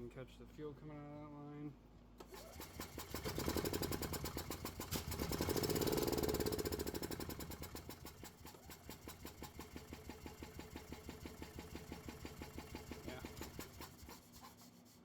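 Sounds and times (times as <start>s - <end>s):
golf cart engine cranking: 2.2s - 14.0s.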